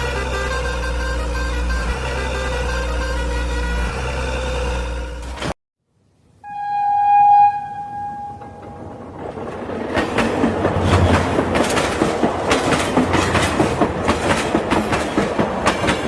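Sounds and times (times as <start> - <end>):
horn note: 0.0 - 5.5, 6.4 - 8.9
vehicle clattering and rattling: 8.5 - 16.0.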